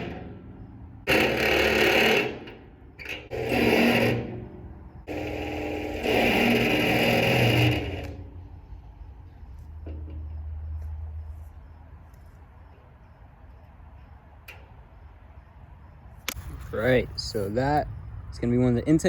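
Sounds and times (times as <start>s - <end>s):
power drill boring through steel: 1.1s - 4.4s, 5.1s - 8.2s.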